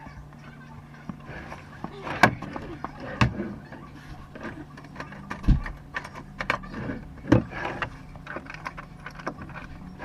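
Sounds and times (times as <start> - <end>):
tools and parts clicking: 7.3 - 10.0.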